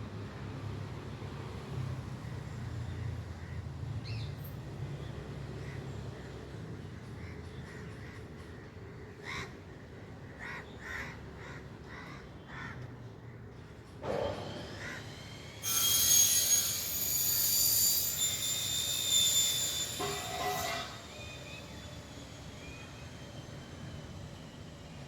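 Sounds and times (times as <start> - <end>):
shrill high-pitched squeal: 15.0 - 23.8.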